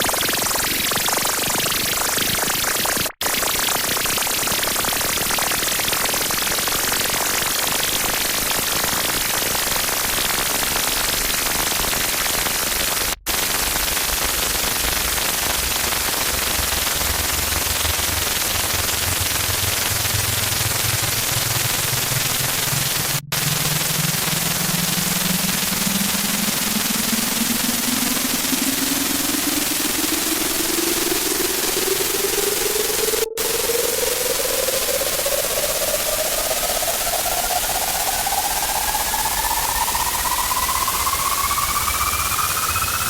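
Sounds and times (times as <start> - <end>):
loud distorted static: 12.0 - 30.6
low drone: 14.6 - 43.0.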